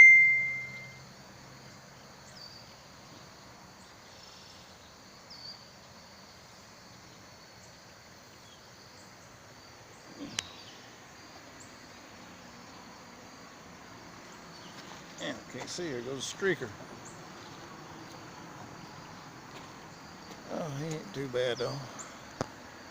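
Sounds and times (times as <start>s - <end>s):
short high chirps: 0.0s - 1.0s
insects trilling: 0.0s - 22.9s.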